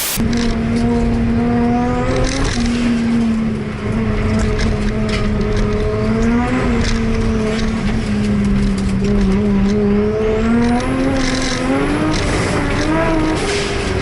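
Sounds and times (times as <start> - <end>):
high rising whine: 0.0 - 0.7
car engine at high revs: 0.0 - 14.0.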